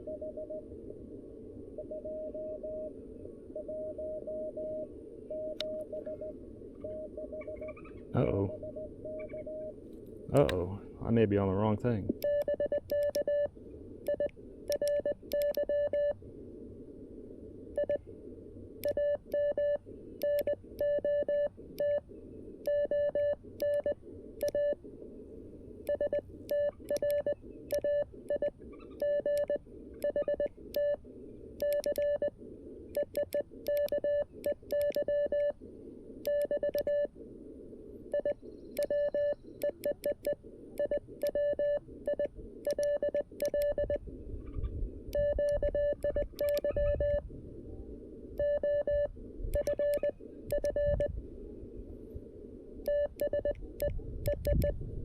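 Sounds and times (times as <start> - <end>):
morse code tone: 8.4 - 9.8, 12.2 - 13.5, 22.7 - 24.8, 36.3 - 37.1, 38.2 - 44.0, 45.2 - 47.2, 48.4 - 51.1
key clicks: 45.5 - 46.7.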